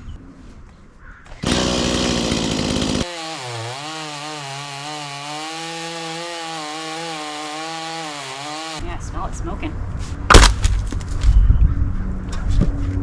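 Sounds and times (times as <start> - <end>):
chainsaw cutting wood: 1.4 - 8.8, 10.3 - 10.7
chainsaw engine running: 1.4 - 8.8.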